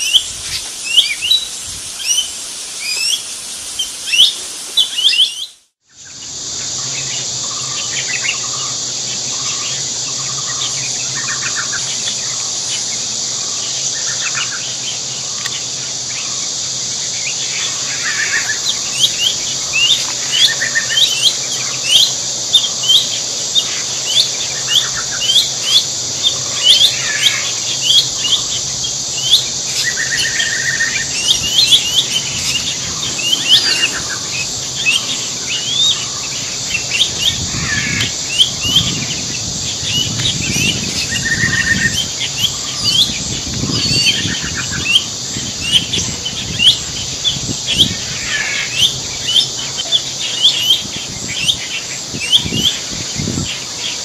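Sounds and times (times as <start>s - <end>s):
high insect drone: 0.0s - 54.0s
quick bird chirps: 30.2s - 36.2s.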